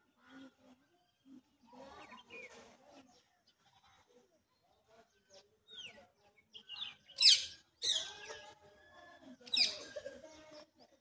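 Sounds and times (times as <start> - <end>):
birds chirping: 4.6 - 10.0.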